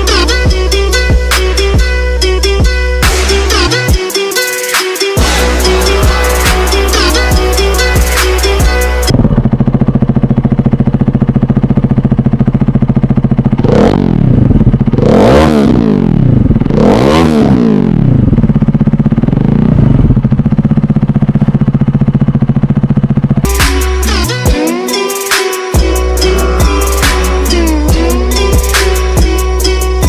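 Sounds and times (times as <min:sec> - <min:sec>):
motorcycle engine idling: 0:00.0 - 0:16.9, 0:17.7 - 0:30.0
motorcycle throttle blips: 0:08.2 - 0:23.8.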